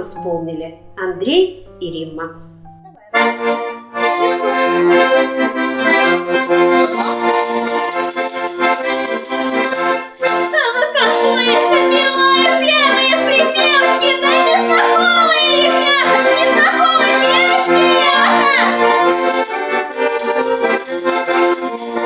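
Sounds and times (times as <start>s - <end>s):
accordion playing chords: 3.1s - 22.0s
person singing: 6.5s - 13.5s, 14.3s - 22.0s.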